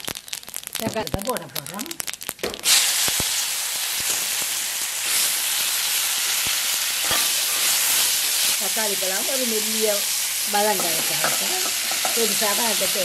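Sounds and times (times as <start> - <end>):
tomatoes sizzling in hot oil: 0.0 - 13.0.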